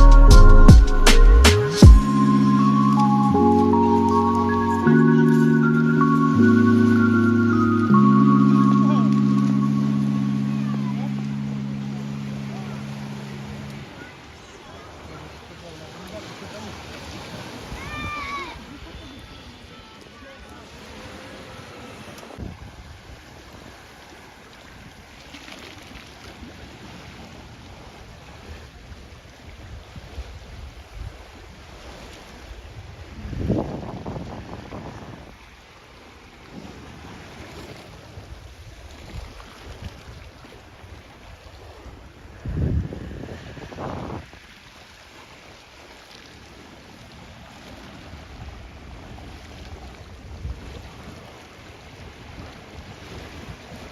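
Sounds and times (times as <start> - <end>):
sea waves washing onto beach: 2.0 - 53.9
wind buffeting microphone: 32.4 - 35.5, 39.1 - 44.9.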